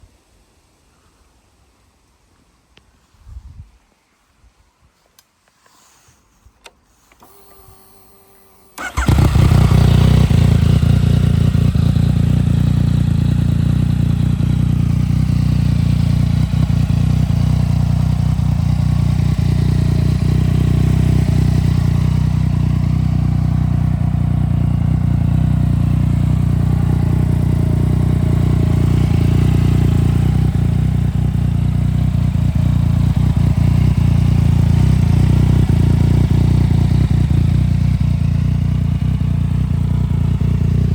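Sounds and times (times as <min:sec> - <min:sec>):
motorcycle engine starting and idling: 0:06.7 - 0:40.9.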